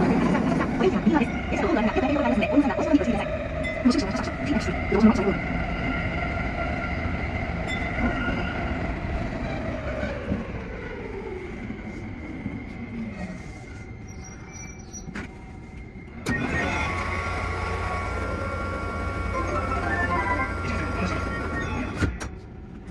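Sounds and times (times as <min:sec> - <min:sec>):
rumbling wheel and track noise: 0:00.0 - 0:22.9
electric train motor whine: 0:16.2 - 0:22.2.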